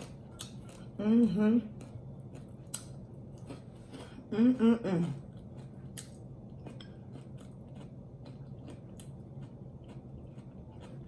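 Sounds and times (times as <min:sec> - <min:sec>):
low steady hum: 0:00.0 - 0:11.0
chewing and biting: 0:05.2 - 0:11.0.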